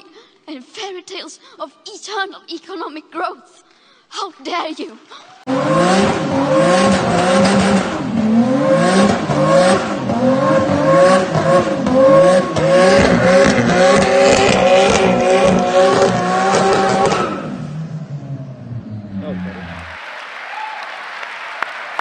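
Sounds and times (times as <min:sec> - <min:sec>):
car engine revving: 0:05.4 - 0:20.0.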